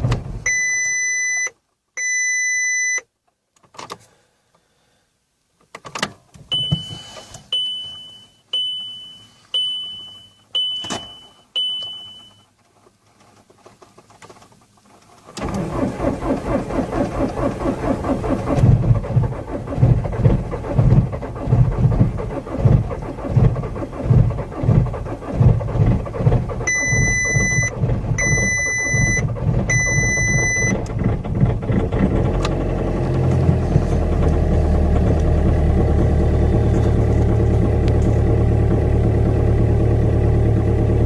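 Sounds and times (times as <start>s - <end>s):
electronic beeps: 7.6s - 12.4s, 26.7s - 30.8s
diesel engine starting and idling: 15.2s - 41.0s.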